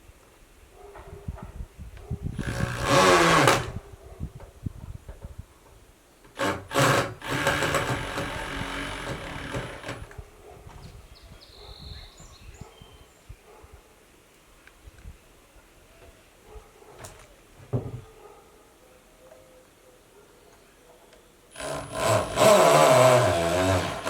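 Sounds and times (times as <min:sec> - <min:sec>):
power drill driving screws: 0:02.4 - 0:03.8, 0:06.3 - 0:10.2, 0:21.6 - 0:24.0
knocks: 0:17.6 - 0:18.1.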